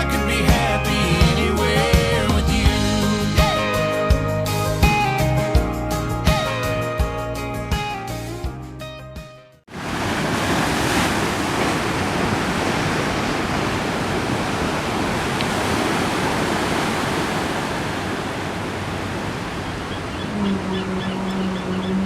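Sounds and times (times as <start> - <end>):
steady rushing outdoor noise: 9.7 - 20.4.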